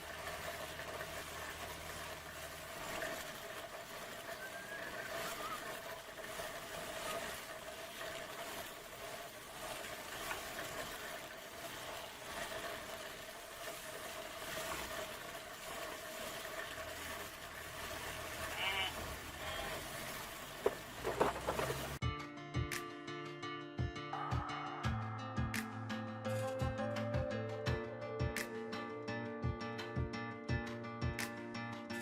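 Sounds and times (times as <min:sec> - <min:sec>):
light irregular clatter: 0:20.6 - 0:22.0.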